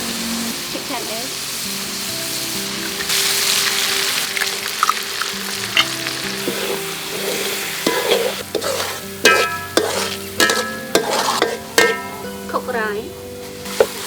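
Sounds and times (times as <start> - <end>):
egg frying in hot oil: 0.0 - 12.0
metal spatula scraping a pan: 5.7 - 12.7, 13.6 - 14.0.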